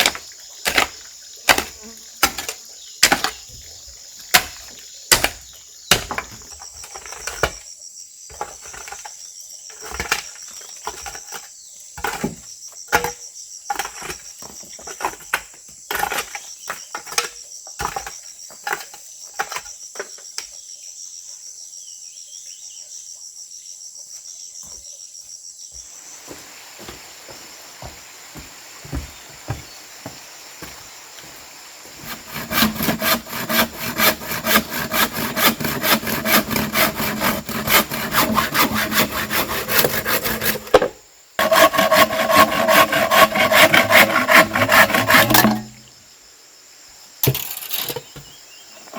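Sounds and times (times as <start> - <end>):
crickets chirping: 0.0 - 48.9.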